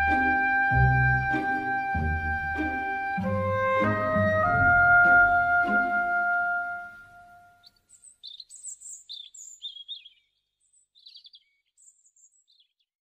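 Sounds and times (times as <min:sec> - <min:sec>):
held woodwind note: 0:00.0 - 0:07.6
small birds chirping: 0:07.3 - 0:13.0.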